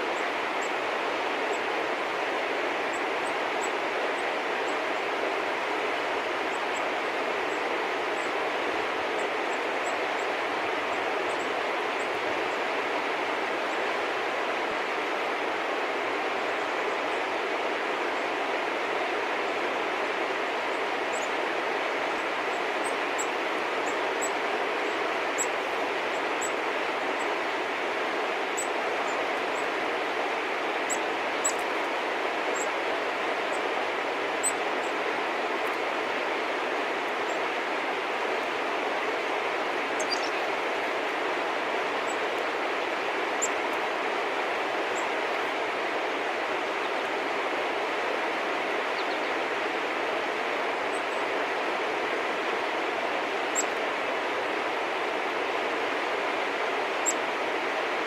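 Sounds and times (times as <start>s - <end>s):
steady rushing noise: 0.0s - 58.0s
small birds chirping: 30.8s - 31.9s, 39.9s - 40.7s, 48.8s - 49.4s.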